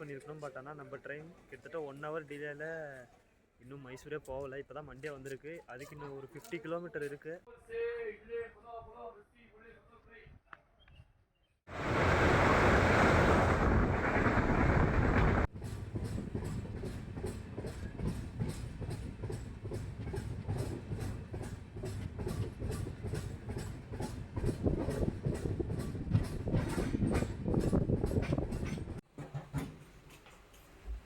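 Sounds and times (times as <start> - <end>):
train rushing noise: 11.7 - 29.0
train wheels clickety-clack: 15.2 - 31.0.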